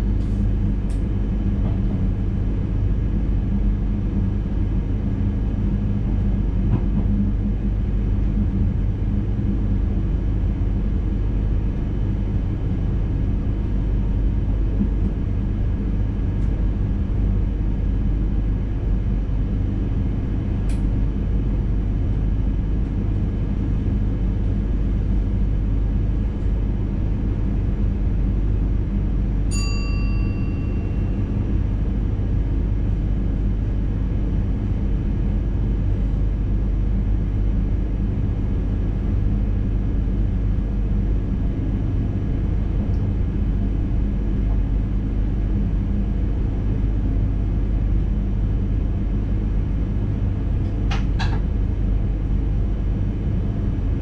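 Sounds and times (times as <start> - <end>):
train rumbling: 0.0 - 2.3, 6.1 - 8.8
bell-like chime: 29.5 - 31.2.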